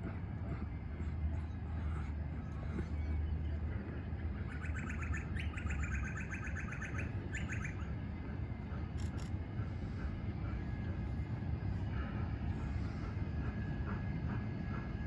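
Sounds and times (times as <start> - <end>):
steady low rumble: 0.0 - 15.0
bird rapid chirping: 4.6 - 7.8.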